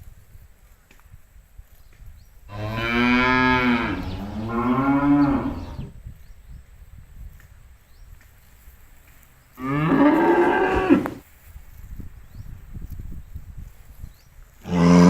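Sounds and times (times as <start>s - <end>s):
cow mooing: 2.5s - 5.9s, 9.6s - 11.2s, 14.6s - 15.0s.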